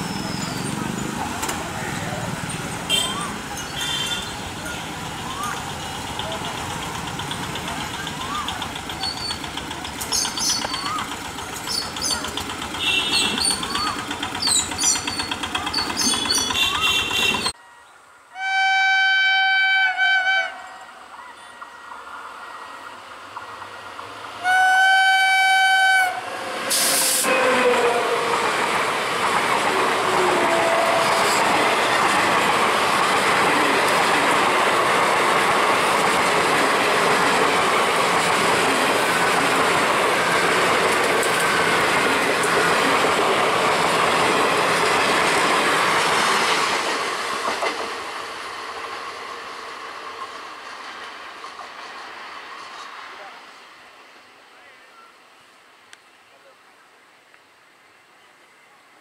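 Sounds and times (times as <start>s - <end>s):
train passing at speed: 0.0s - 18.3s, 19.2s - 55.8s
street noise: 0.0s - 18.8s, 20.0s - 59.0s
locomotive horn blasts: 3.8s - 4.4s, 12.8s - 13.4s, 18.4s - 20.7s, 24.4s - 26.3s, 30.3s - 31.4s.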